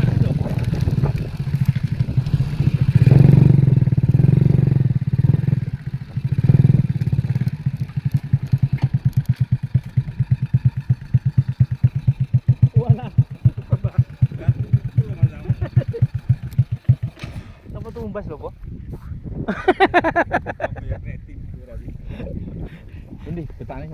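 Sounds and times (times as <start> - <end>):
excavator diesel engine pulsing: 0.0 - 18.0.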